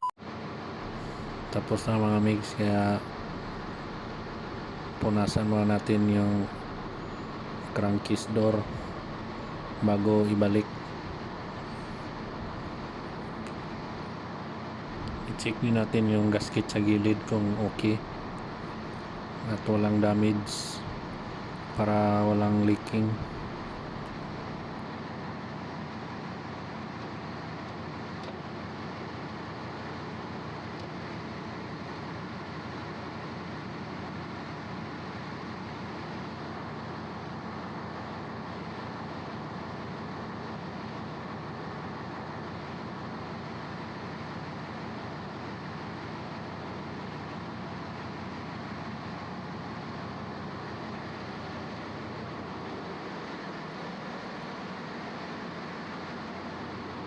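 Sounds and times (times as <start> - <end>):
engine-room machinery noise: 0.8 - 14.2, 14.8 - 24.9, 34.7 - 57.0.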